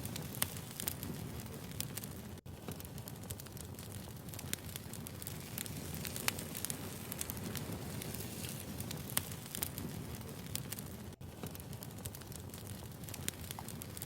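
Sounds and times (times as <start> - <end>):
fire crackles and pops: 0.0 - 14.0
low rumble of flames: 0.0 - 14.0.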